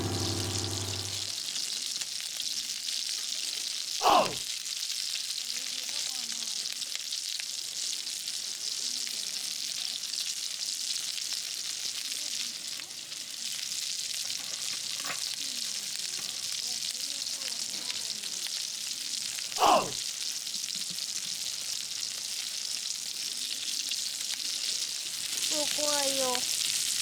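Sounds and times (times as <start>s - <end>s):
short sound dropping in pitch: 0.0s - 1.3s
patties sizzling on a griddle: 0.0s - 27.0s.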